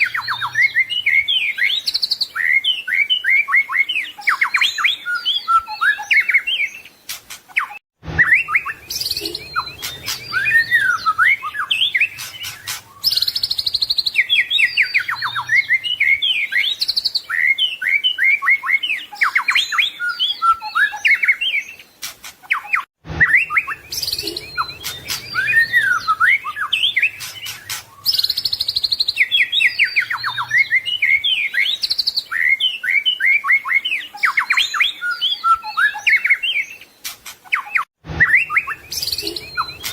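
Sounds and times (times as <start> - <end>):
bird singing varied song: 0.0 - 39.9.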